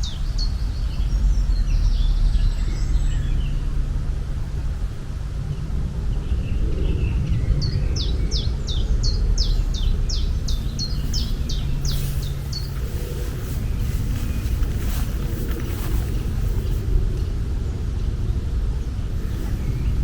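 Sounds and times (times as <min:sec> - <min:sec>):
steady low rumble: 0:00.0 - 0:20.0
bird chirping: 0:06.2 - 0:20.0.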